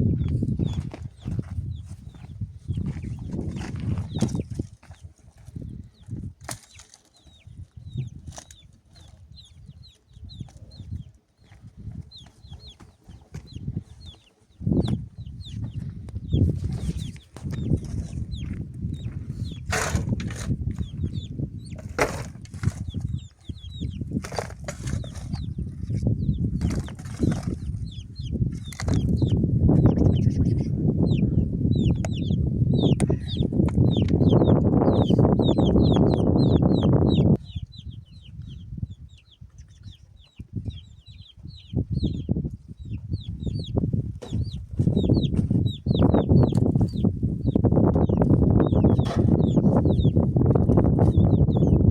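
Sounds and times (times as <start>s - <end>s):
birds chirping: 0.0s - 51.9s.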